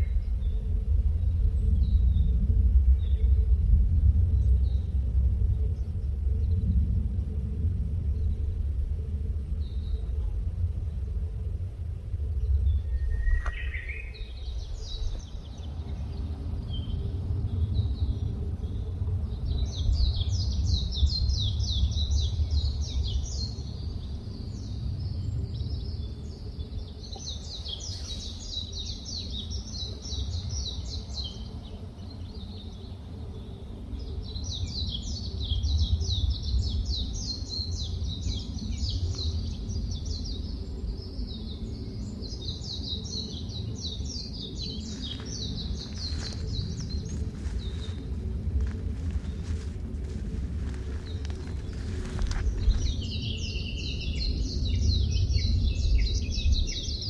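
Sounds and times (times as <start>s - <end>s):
steady low rumble: 0.0s - 57.0s
songbird singing high trills: 12.7s - 17.1s.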